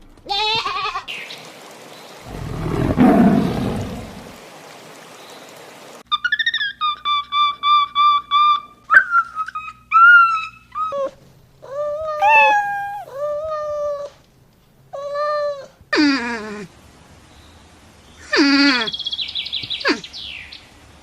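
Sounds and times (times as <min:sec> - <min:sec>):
longer animal calls: 0:02.3 - 0:04.4, 0:12.2 - 0:13.3
low falling animal call: 0:02.3 - 0:04.4, 0:09.6 - 0:14.2
short high animal cries: 0:12.2 - 0:13.1.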